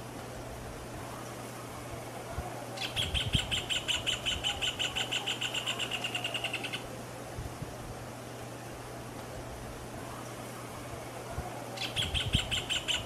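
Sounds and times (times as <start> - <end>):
bird trilling: 2.8 - 6.9, 11.8 - 13.0.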